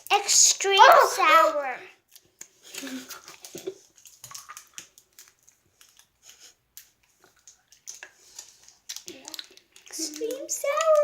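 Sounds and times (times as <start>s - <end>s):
candy packaging crinkling: 2.0s - 11.0s.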